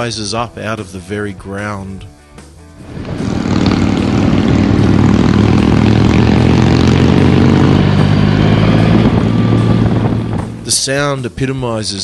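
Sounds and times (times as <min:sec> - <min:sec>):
motorcycle engine accelerating: 0:02.7 - 0:11.3.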